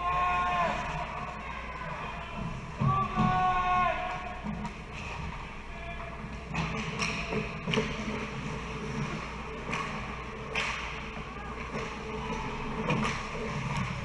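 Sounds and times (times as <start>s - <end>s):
stick and puck knocks: 9.0s - 11.9s.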